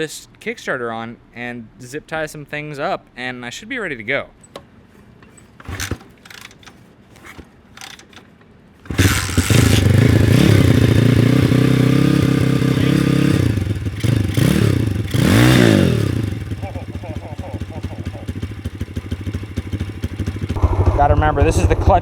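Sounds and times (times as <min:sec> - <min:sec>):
engine revving: 0:08.9 - 0:22.0
motorbike engine running: 0:08.9 - 0:22.0.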